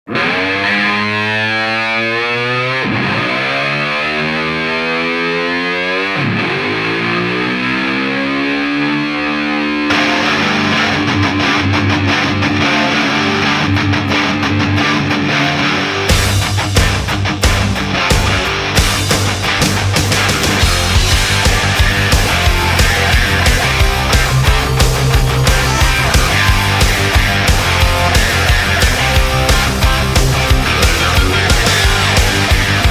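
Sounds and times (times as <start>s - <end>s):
distorted electric guitar: 0.0s - 32.9s
full rock band: 8.4s - 32.9s
drums: 15.9s - 32.9s.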